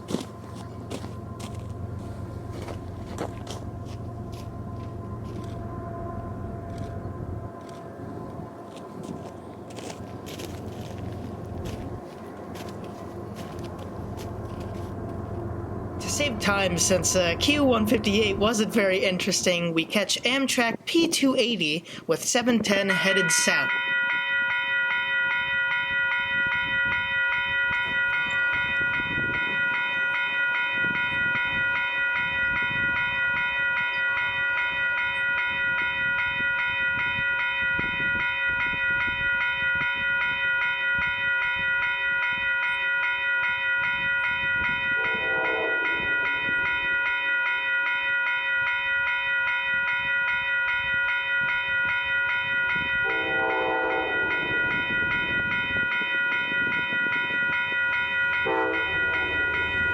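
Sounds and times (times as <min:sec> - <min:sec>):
train horn blasts: 0:00.0 - 0:09.0, 0:44.0 - 0:47.2, 0:52.7 - 0:55.6, 0:57.0 - 0:59.9
passenger train passing: 0:00.0 - 0:59.9.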